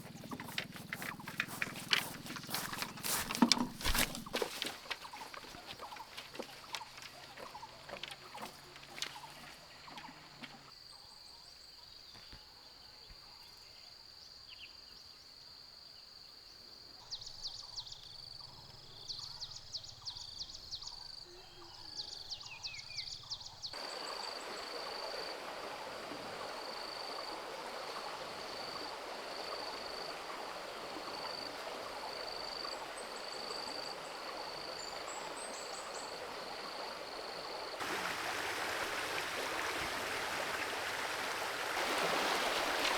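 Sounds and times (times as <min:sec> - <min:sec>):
flowing creek rushing: 0:00.0 - 0:10.7, 0:23.8 - 0:42.9
rapid insect chirping: 0:00.0 - 0:12.0, 0:15.2 - 0:42.9.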